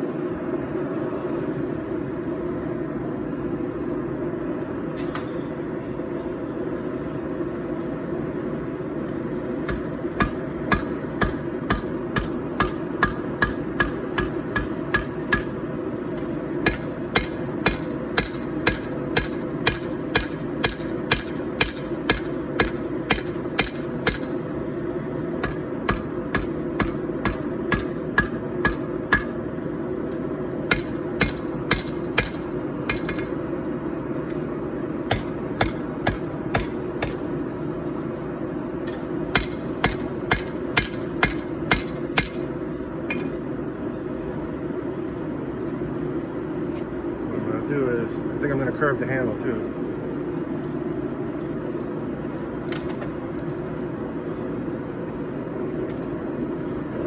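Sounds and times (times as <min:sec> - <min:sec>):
hammer striking steel on anvil: 0:09.6 - 0:24.4, 0:25.4 - 0:29.4, 0:30.7 - 0:33.4, 0:35.1 - 0:37.3, 0:38.8 - 0:42.5, 0:43.1 - 0:43.4.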